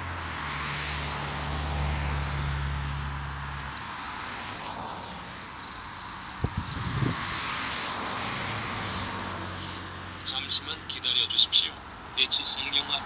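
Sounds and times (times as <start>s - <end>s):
road traffic noise: 0.0s - 13.0s
vehicle engine hum: 0.0s - 13.0s.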